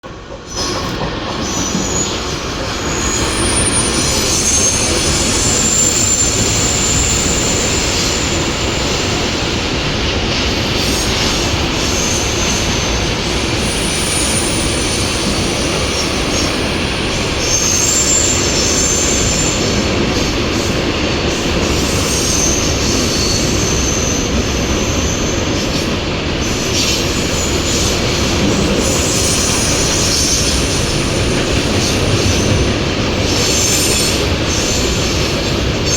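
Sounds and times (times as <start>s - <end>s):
train wheels rumbling on rail: 0.0s - 35.9s
high wheel squeals: 0.5s - 9.6s, 10.8s - 19.9s, 26.5s - 35.9s
faint high squeal: 1.5s - 9.3s.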